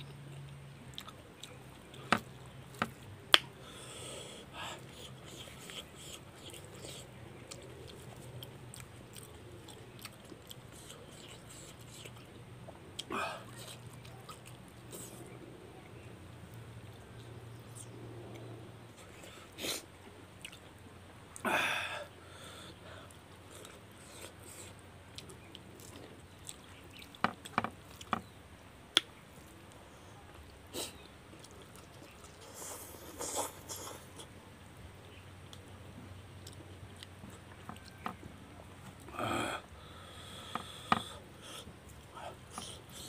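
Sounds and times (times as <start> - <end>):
chewing and mouth smacking: 0.0 - 3.6, 4.8 - 12.4, 13.0 - 15.4, 20.4 - 20.7, 23.1 - 28.3, 30.4 - 34.4, 36.4 - 39.1.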